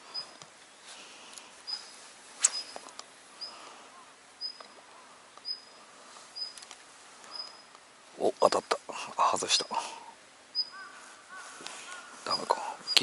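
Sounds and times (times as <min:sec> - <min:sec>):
small bird chirping: 0:00.0 - 0:00.4, 0:01.6 - 0:07.8, 0:10.5 - 0:13.0.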